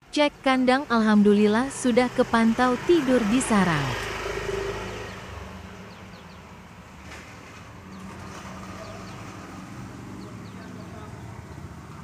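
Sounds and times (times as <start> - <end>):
small birds chirping: 5.1 - 6.7, 7.8 - 11.8.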